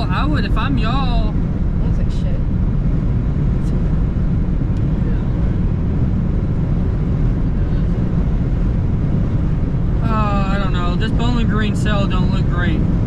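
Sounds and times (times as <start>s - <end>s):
car cabin road and engine noise: 0.0s - 13.0s.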